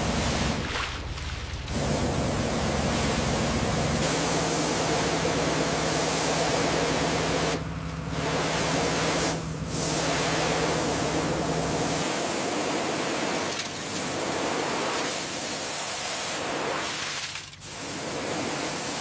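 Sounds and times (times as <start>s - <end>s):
low hum: 0.0s - 12.0s
loud steady hiss: 1.7s - 19.0s.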